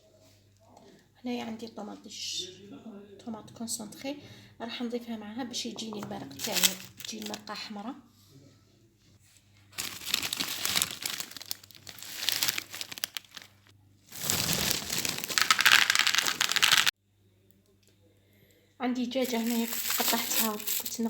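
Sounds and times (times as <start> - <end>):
plastic packaging crinkling: 6.4 - 7.5, 9.7 - 16.9, 19.2 - 21.0.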